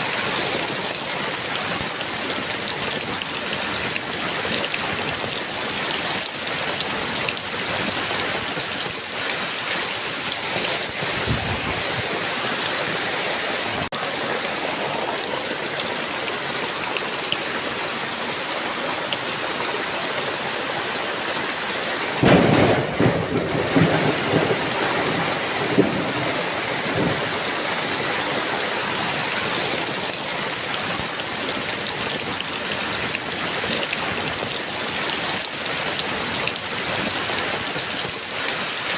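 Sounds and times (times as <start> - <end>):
heavy rain: 0.0 - 38.9
thunderclap rumbling: 10.5 - 12.4, 22.2 - 27.8.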